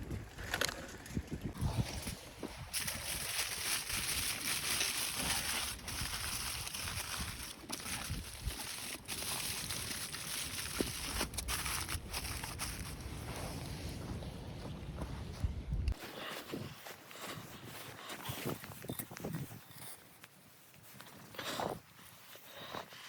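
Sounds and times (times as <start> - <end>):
wind rumble on microphone: 0.0 - 16.8
blizzard wind blowing: 0.0 - 19.9.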